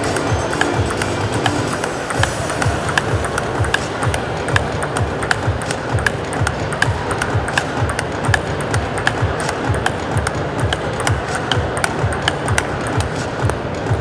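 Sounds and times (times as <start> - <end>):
arena music with thumping beat: 0.0 - 14.0
table tennis ball clicking: 0.0 - 14.0.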